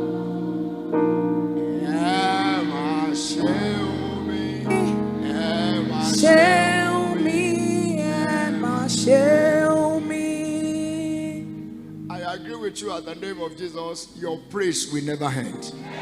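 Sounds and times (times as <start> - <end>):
sustained keyboard chords: 0.0 - 15.8
man singing: 1.8 - 9.6.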